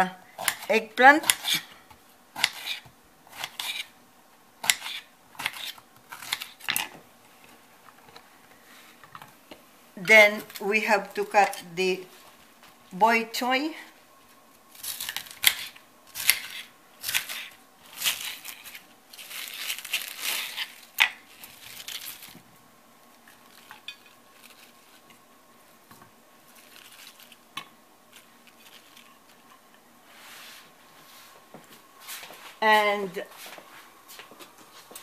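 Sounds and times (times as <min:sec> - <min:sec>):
knife crunching through stalks: 0:04.6 - 0:06.9, 0:14.8 - 0:22.4.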